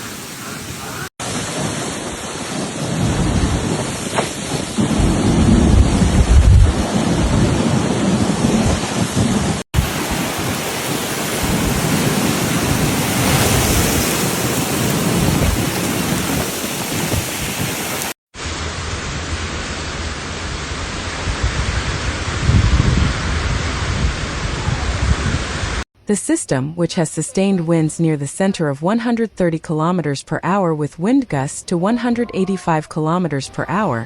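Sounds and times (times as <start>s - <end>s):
heavy rain: 0.0s - 25.8s
strong wind: 0.0s - 25.8s.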